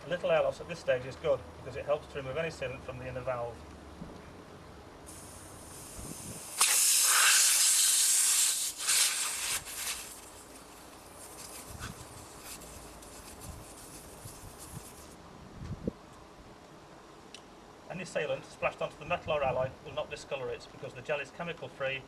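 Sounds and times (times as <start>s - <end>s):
air hissing from tyre valve: 5.1s - 15.2s.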